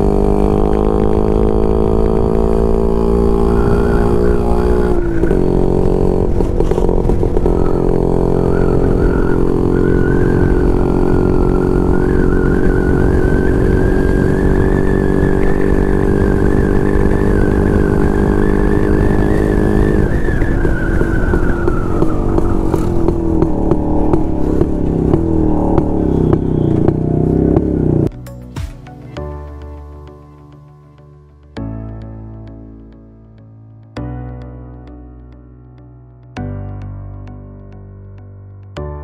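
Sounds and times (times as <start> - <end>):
motorcycle engine running: 0.0 - 28.2.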